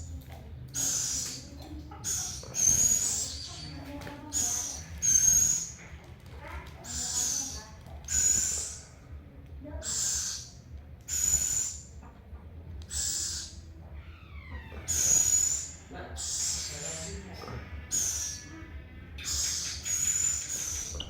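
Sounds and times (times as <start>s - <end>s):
owl hissing begging calls: 0.8s - 1.4s, 4.3s - 5.8s, 6.8s - 9.0s, 9.8s - 11.9s, 12.9s - 13.6s, 14.9s - 17.2s, 17.9s - 21.0s.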